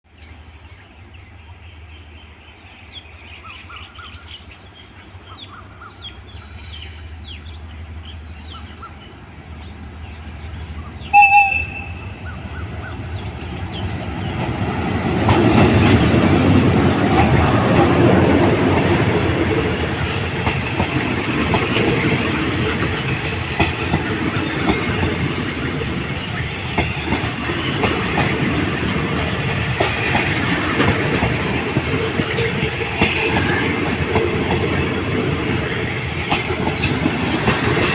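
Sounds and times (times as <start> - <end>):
train passing: 0.1 - 37.9
train horn blast: 11.1 - 12.4.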